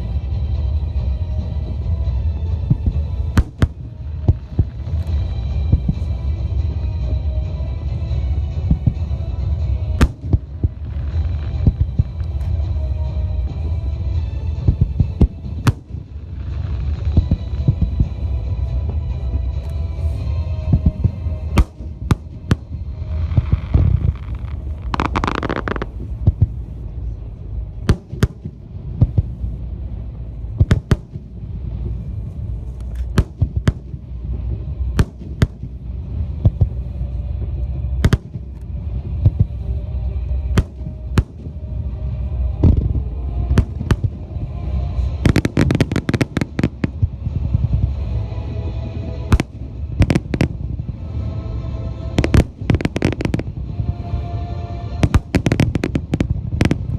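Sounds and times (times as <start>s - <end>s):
low rumble: 0.0s - 56.9s
music: 0.0s - 56.9s
fireworks bangs: 2.7s - 6.2s, 14.6s - 18.3s, 20.0s - 26.9s, 27.7s - 36.8s, 38.0s - 39.6s, 40.4s - 56.9s
crackling hiss: 20.8s - 26.8s.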